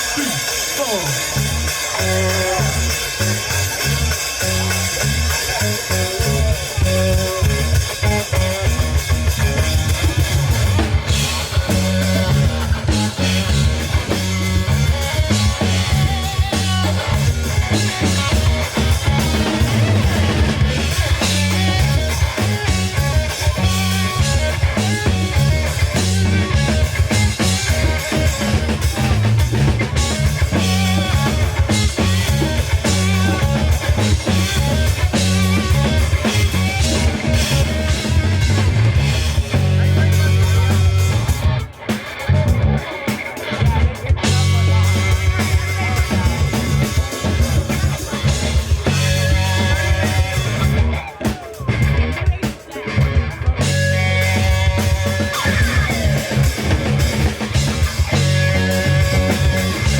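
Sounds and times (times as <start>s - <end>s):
funk-rock band playing: 0.0s - 59.9s
steady drum beat: 0.0s - 59.9s
bass guitar low notes: 1.0s - 59.9s.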